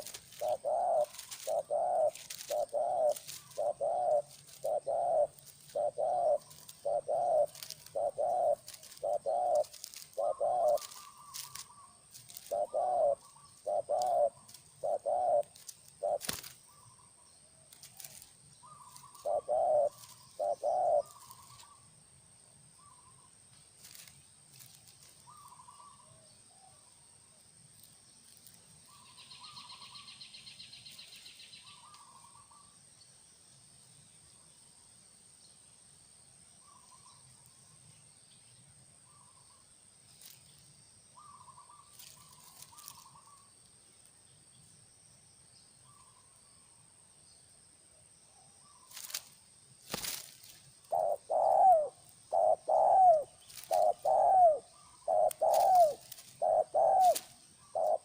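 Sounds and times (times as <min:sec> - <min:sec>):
dove cooing: 0:00.0 - 0:17.1, 0:17.7 - 0:21.8, 0:50.8 - 0:58.0.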